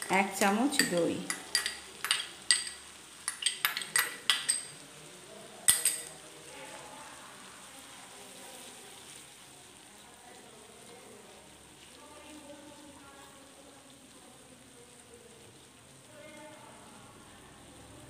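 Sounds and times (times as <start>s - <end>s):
spatula stirring: 0.0s - 4.9s
masala sizzling in oil: 0.0s - 18.0s
metal spoon clinking on ceramic bowl: 0.7s - 4.7s, 5.7s - 6.1s.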